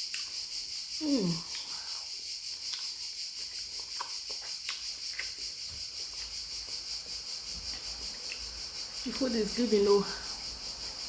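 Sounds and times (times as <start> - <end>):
chewing and smacking: 0.0 - 0.5, 2.5 - 8.8
crickets chirping: 0.0 - 11.0.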